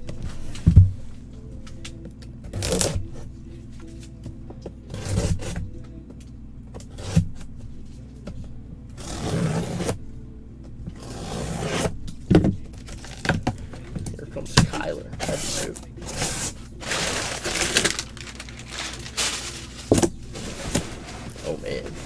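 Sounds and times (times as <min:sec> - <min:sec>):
faint steady hum: 0:00.0 - 0:22.0
packaging rustling and scraping: 0:12.7 - 0:22.0.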